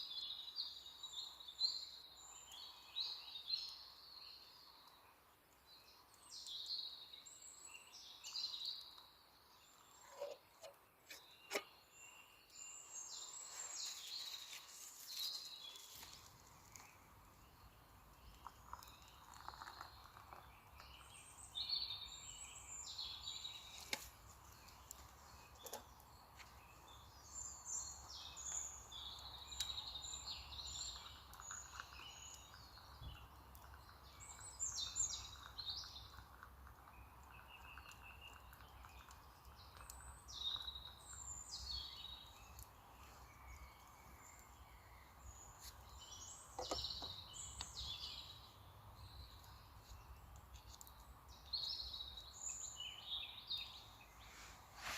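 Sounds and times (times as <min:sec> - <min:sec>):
birds chirping and trilling: 0:39.7 - 0:54.9.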